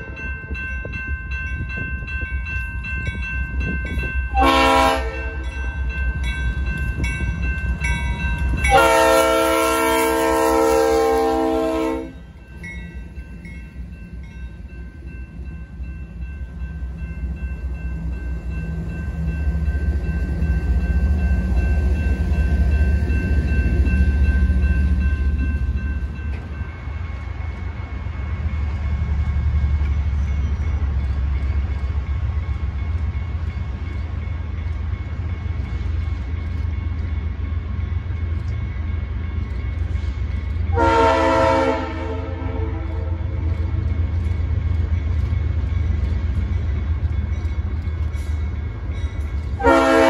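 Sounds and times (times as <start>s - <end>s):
diesel train rumbling: 0.0s - 50.0s
locomotive air horn blasts: 4.3s - 5.4s, 8.7s - 12.2s, 40.7s - 43.5s, 49.6s - 50.0s.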